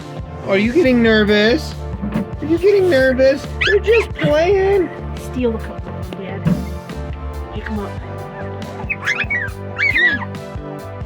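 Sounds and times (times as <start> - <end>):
background music: 0.0 - 11.0
puppy squealing: 3.5 - 4.4, 7.9 - 10.4.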